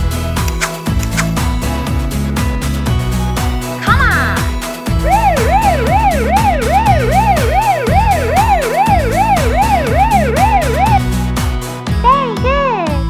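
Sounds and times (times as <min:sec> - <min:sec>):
background music with steady beat: 0:00.0 - 0:12.1
siren wailing: 0:05.0 - 0:11.3.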